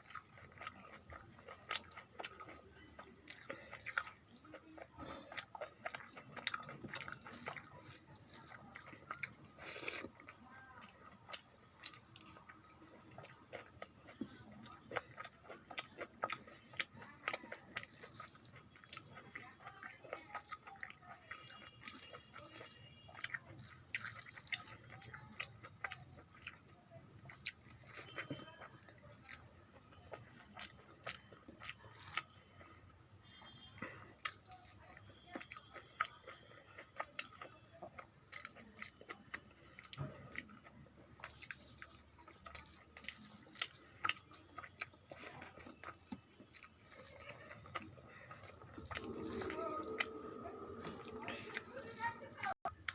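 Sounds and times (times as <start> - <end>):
person chewing and eating: 0.0 - 52.9.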